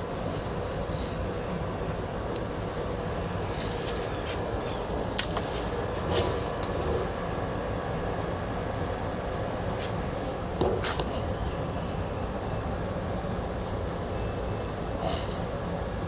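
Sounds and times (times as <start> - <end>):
clicks and knocks of fan parts: 3.8 - 5.8.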